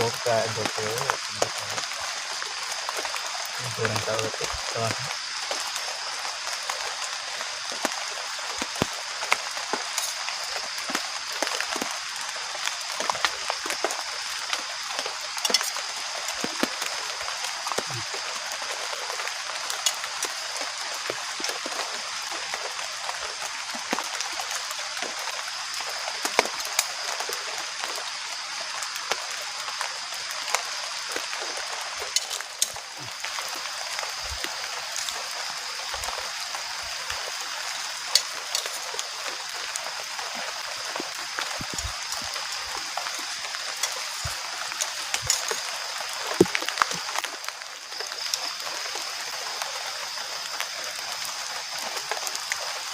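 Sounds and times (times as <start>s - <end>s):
heavy rain falling: 0.0s - 52.9s
sharp close drips: 29.0s - 52.9s.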